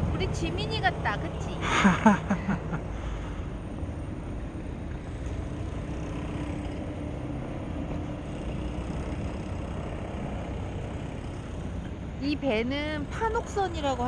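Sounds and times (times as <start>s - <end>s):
wind buffeting microphone: 0.0s - 1.8s.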